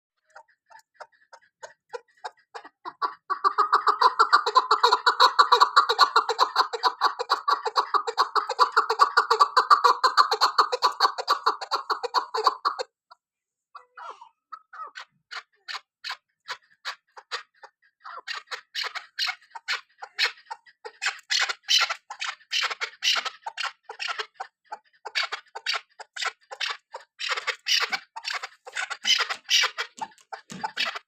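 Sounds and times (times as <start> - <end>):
partridge calling: 2.9 - 12.8, 14.5 - 31.0.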